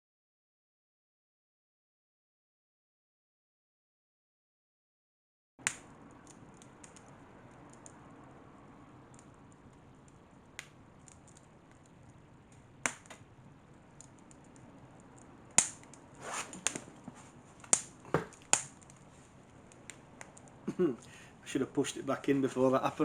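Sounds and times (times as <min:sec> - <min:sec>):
fire crackling and popping: 0:05.6 - 0:23.0.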